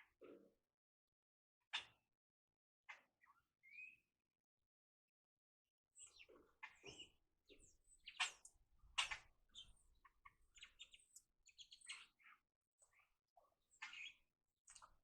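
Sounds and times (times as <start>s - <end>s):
small birds chirping: 6.0s - 15.0s.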